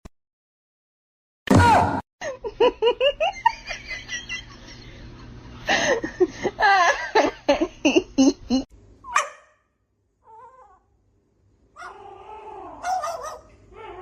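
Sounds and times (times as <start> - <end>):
high-pitched giggling laughter: 2.2 - 8.7.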